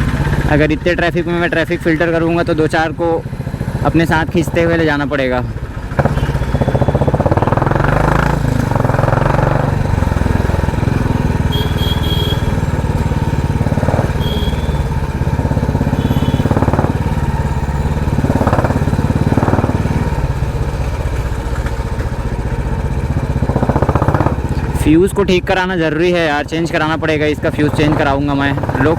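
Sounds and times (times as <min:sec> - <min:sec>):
motorcycle engine loud exhaust: 0:00.0 - 0:28.9.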